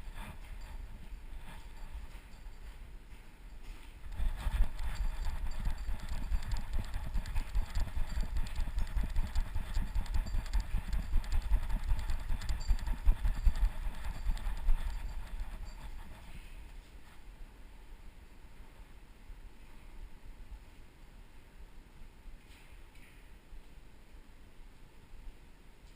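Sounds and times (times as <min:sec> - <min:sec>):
dog's running strides thumping: 0:00.0 - 0:16.3.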